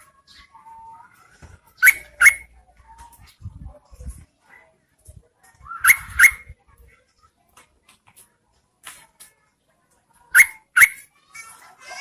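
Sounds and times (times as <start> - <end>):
faint bird chips: 0.0 - 3.4, 5.5 - 6.6, 10.2 - 12.0
bird calling: 1.8 - 2.5, 5.8 - 6.5.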